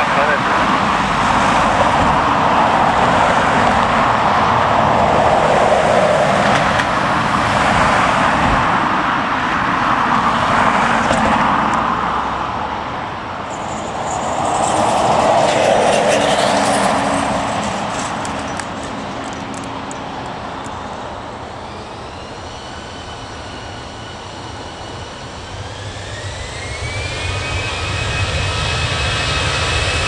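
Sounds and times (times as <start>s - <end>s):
jet airliner engine roar: 0.0s - 30.0s.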